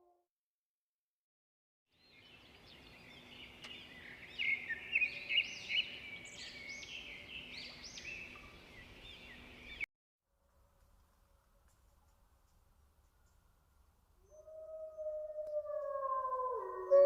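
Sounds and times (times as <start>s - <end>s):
outdoor background noise: 1.9s - 17.0s
birds chirping: 2.0s - 9.9s.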